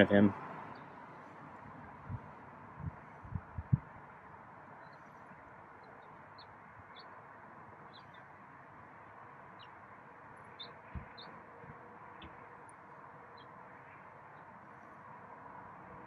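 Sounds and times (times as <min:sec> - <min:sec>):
faint outdoor hiss: 0:00.0 - 0:16.0
high bird chirps: 0:10.5 - 0:11.3.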